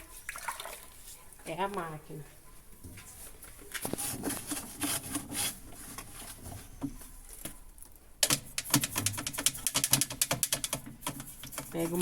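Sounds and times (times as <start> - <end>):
hands rubbing plastic parts: 3.7 - 6.7, 8.2 - 12.0.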